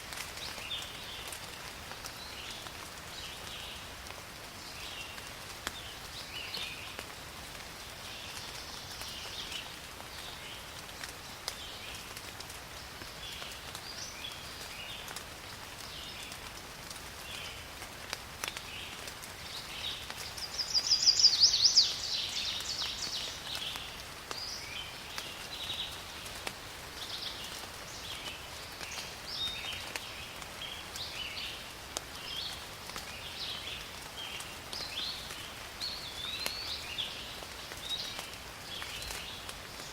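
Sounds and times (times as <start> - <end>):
steady rain: 0.0 - 39.9
small birds chirping: 18.4 - 39.9.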